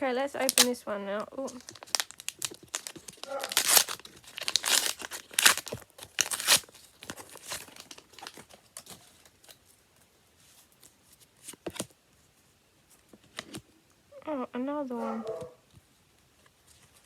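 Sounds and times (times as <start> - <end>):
cards rustling: 0.3 - 9.7
wrapper tearing and crinkling: 0.4 - 9.6.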